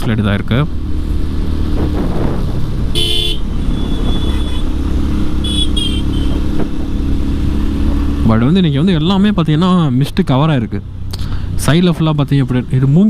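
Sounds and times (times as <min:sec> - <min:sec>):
wind buffeting microphone: 0:01.1 - 0:05.4
short horn toot: 0:03.0 - 0:04.7.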